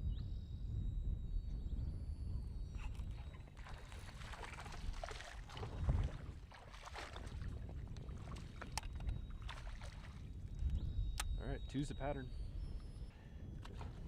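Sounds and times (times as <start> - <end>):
wind rumble on microphone: 0.0 - 14.0
water splashing around kayak: 3.1 - 10.4.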